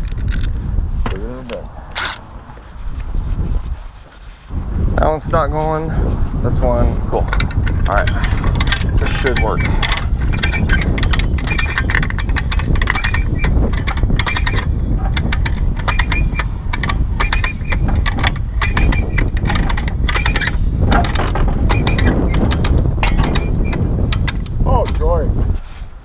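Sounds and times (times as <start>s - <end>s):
steady low rumble: 0.0s - 26.0s
metallic clicking and clanking: 7.2s - 25.0s.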